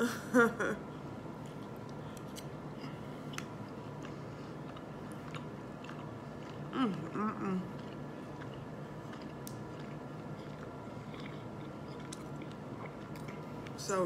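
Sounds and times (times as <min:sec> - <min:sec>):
person chewing: 0:01.0 - 0:13.8
wet mouth clicks and smacks: 0:07.8 - 0:13.4.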